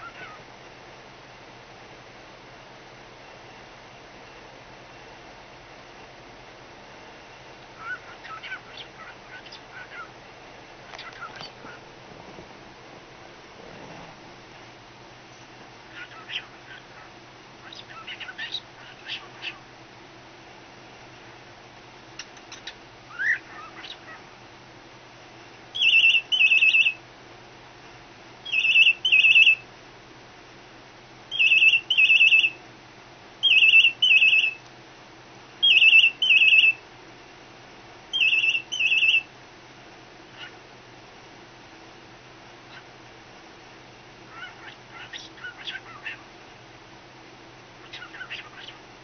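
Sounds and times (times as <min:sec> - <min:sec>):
bird chirping: 0:07.8 - 0:10.1, 0:10.9 - 0:11.8, 0:15.3 - 0:19.6, 0:22.2 - 0:24.2, 0:25.7 - 0:27.0, 0:28.4 - 0:29.6, 0:31.3 - 0:32.6, 0:33.4 - 0:34.6, 0:35.6 - 0:36.8, 0:38.1 - 0:39.3, 0:44.3 - 0:46.2, 0:47.8 - 0:48.8
bird squeaking: 0:07.8 - 0:10.1, 0:15.9 - 0:19.6, 0:25.8 - 0:27.0, 0:28.5 - 0:29.6, 0:31.3 - 0:32.6, 0:33.4 - 0:34.6, 0:35.6 - 0:36.8, 0:38.2 - 0:39.2, 0:44.3 - 0:46.2, 0:47.8 - 0:48.8
bird imitating a telephone ring: 0:31.3 - 0:32.6, 0:38.1 - 0:39.2.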